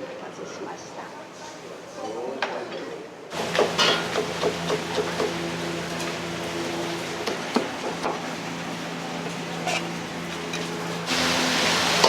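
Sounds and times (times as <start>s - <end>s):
food sizzling in a wok: 3.3s - 12.0s
kitchen hum: 3.3s - 12.0s
utensils clinking: 9.6s - 10.8s.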